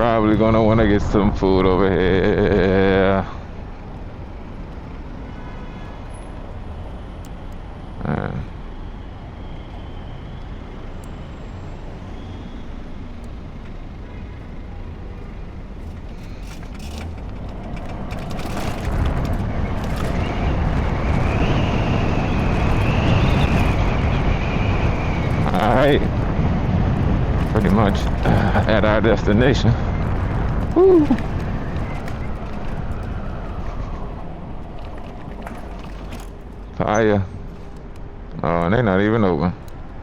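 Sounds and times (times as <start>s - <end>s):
wind and road rush: 0.0s - 40.0s
high wavering whine: 6.8s - 17.3s, 18.2s - 37.6s.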